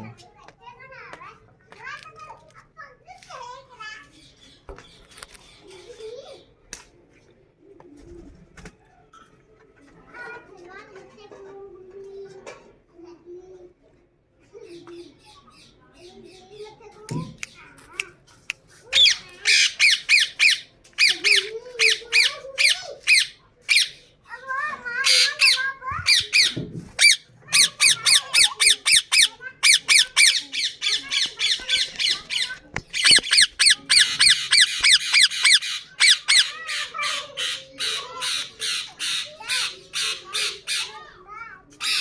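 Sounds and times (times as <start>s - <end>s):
parakeets squawking: 18.9s - 24.2s, 24.9s - 41.1s, 41.8s - 42.0s.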